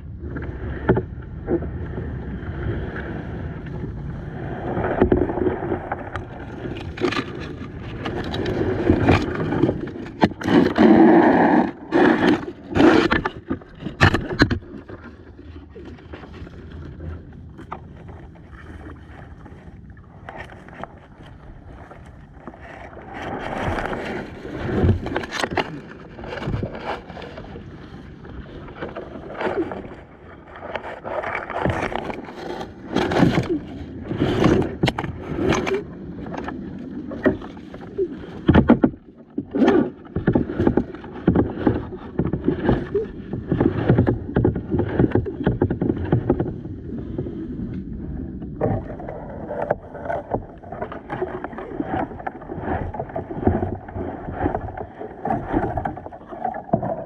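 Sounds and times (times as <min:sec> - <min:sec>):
paddle splashing in water: 0:00.4 - 0:57.0
paddle knocking on hull: 0:38.4 - 0:46.6.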